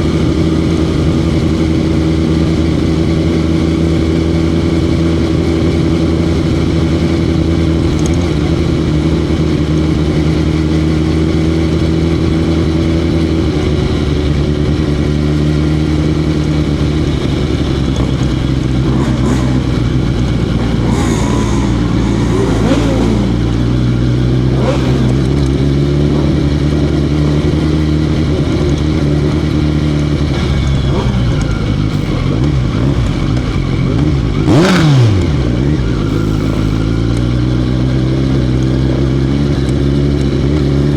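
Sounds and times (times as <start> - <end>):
motorcycle engine running: 0.0 - 40.9
engines passing by: 16.8 - 27.2, 28.3 - 37.2.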